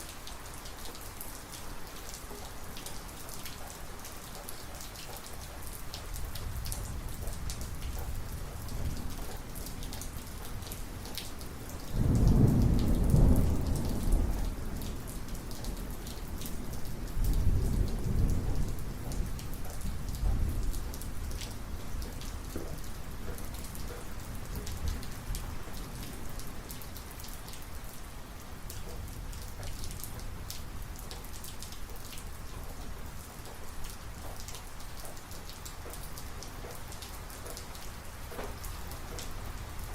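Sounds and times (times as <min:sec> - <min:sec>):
heavy rain: 0:00.0 - 0:39.9
thunder rolling: 0:12.0 - 0:14.8.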